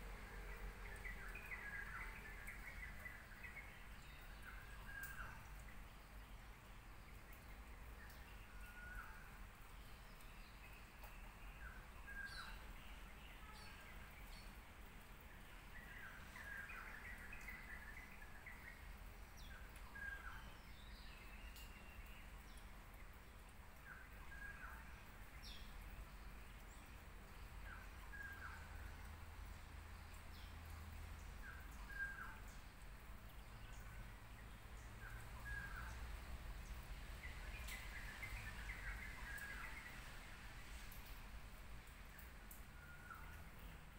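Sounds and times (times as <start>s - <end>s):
faint bird chirps: 0.9s - 5.8s.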